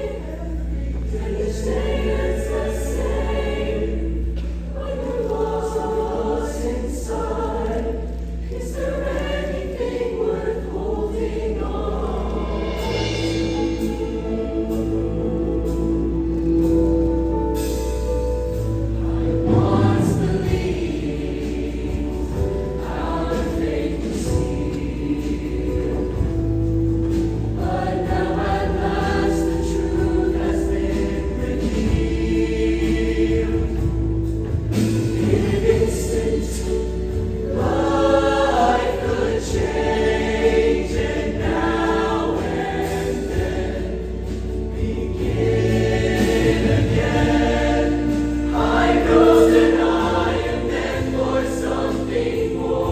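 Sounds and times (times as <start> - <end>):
choir singing in harmony: 0.0 - 52.9.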